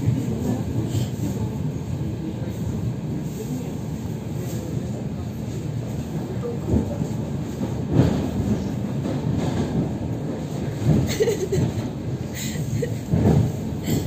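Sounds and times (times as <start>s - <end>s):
train carriage rumble: 0.0s - 14.0s
knocks of train: 6.6s - 12.1s, 12.9s - 14.0s.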